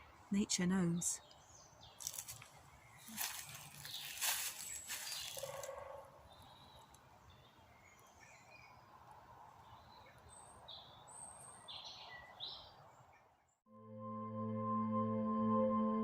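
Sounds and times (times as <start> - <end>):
bird chirps: 6.3 - 8.8.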